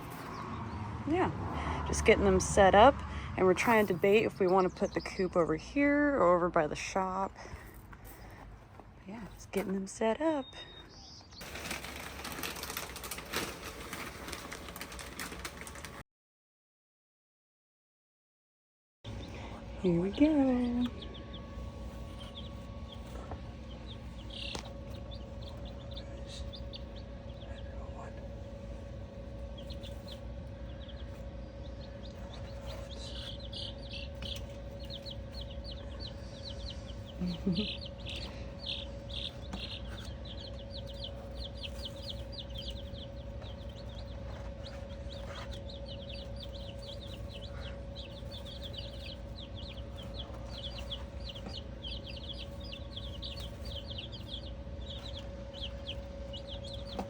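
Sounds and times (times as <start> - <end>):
chicks peeping: 0.0 - 16.0, 19.1 - 57.0
steady hum: 19.1 - 57.0.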